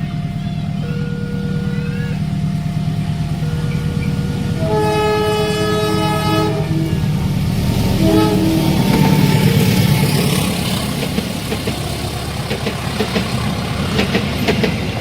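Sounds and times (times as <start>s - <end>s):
crossing signal alarm tones: 0.0s - 7.1s
train horn blasts: 0.0s - 10.2s
train engine drone: 0.0s - 15.0s.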